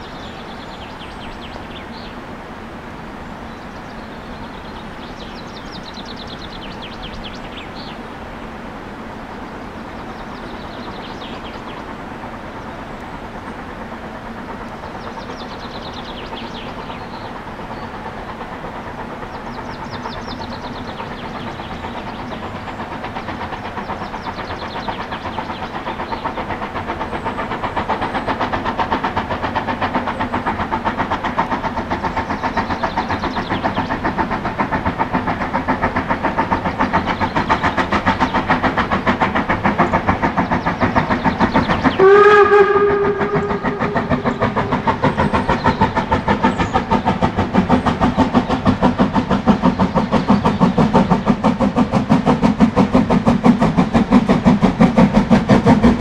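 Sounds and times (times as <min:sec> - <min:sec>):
steam locomotive exhaust beats: 0:00.0 - 0:56.0
steam whistle blast: 0:42.0 - 0:44.0.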